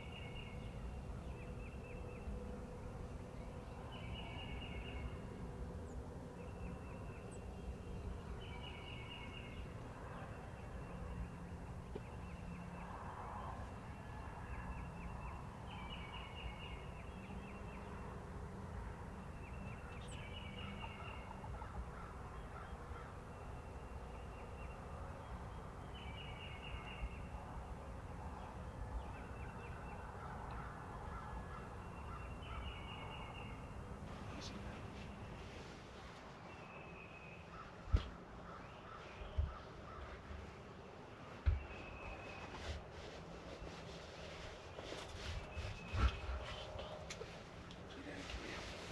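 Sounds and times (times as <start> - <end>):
wild birds calling: 13.4 - 35.7, 36.5 - 42.3.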